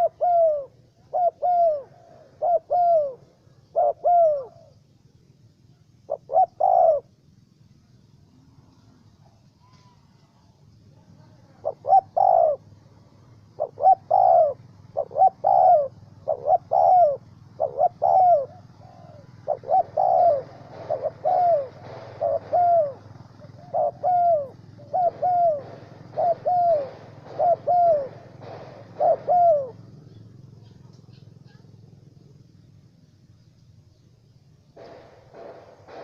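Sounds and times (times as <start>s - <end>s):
dove cooing: 0.0s - 4.9s, 5.8s - 7.3s, 11.0s - 32.5s
faint low hum: 0.0s - 36.0s.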